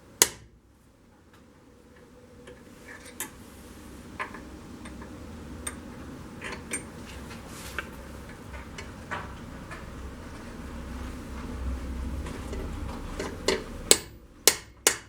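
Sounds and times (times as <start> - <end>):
hammer tapping metal punch: 0.2 - 0.5, 13.2 - 15.0.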